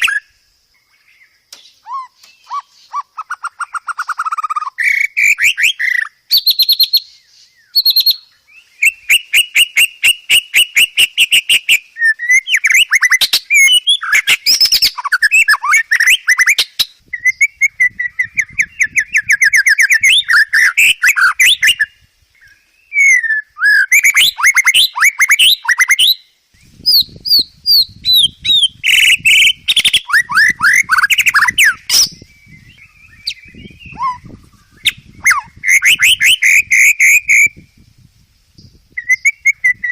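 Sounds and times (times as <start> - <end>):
songbird singing varied song: 0.0 - 39.9.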